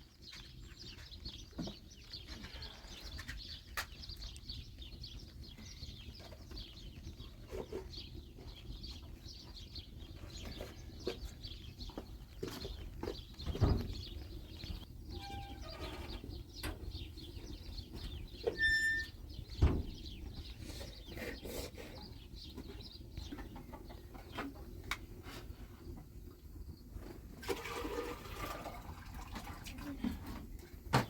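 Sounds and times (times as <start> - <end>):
chickens clucking: 20.4 - 26.3.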